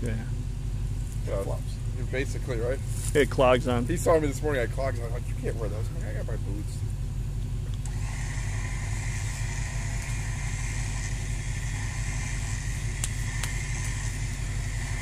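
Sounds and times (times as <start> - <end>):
steady high whine: 0.0 - 15.0
suv engine idling: 0.0 - 15.0
sharp clicks: 12.9 - 14.8.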